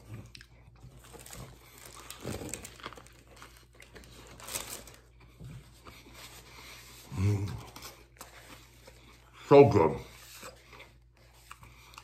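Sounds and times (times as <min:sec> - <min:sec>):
soft chewing: 0:00.0 - 0:12.0
paper crinkling: 0:00.8 - 0:05.3.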